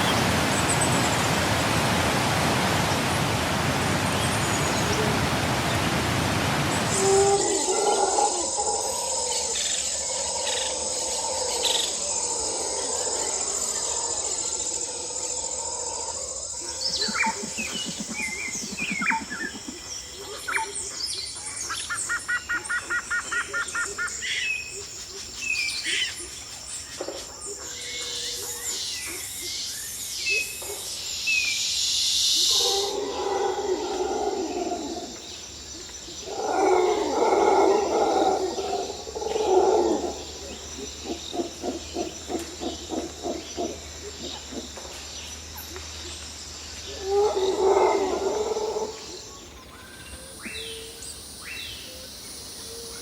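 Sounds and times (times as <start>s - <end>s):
birds calling and chirping: 16.4s - 31.8s, 32.4s - 53.0s.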